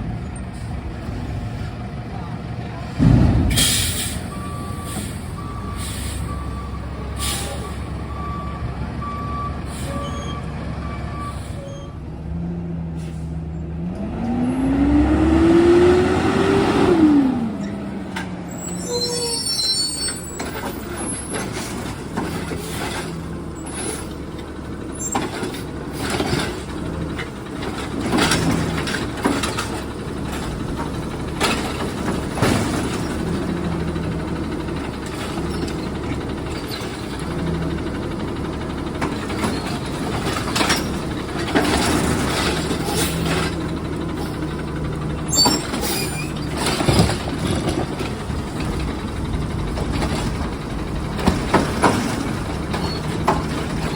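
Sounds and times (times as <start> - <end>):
garbage truck engine hum: 0.0 - 53.9
air brake hiss: 3.5 - 6.3, 7.2 - 7.6, 13.0 - 13.4.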